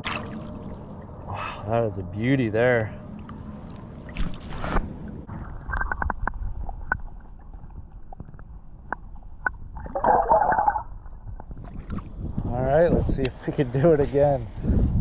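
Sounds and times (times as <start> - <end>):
water splashing: 0.0 - 1.4, 3.0 - 7.6
rumble of water and wind: 0.0 - 15.0.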